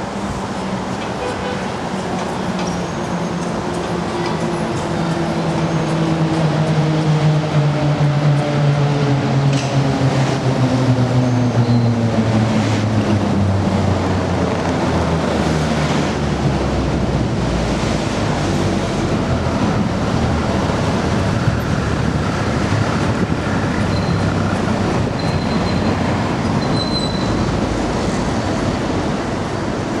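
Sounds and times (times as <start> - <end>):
maglev train slowing: 18.1 - 30.0.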